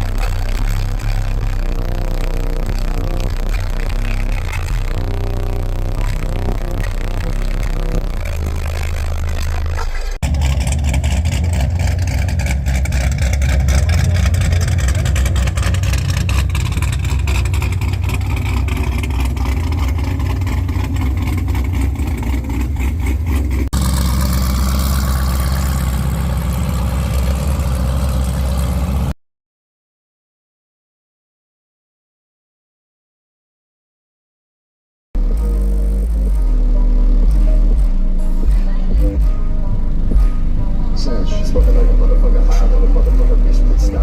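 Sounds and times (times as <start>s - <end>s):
subwoofer deep bass notes: 0.0s - 29.1s, 35.2s - 44.0s
vehicle rattle: 0.0s - 29.1s.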